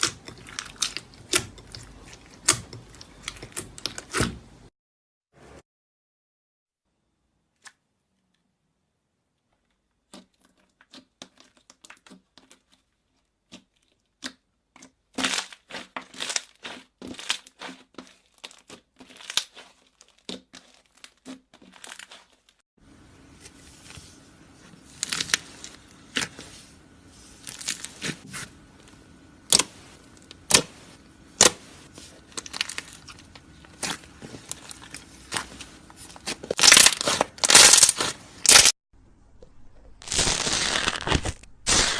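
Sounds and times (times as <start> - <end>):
faint steady hum: 22.8 - 39.6
slime squished by hand: 29.4 - 38.7.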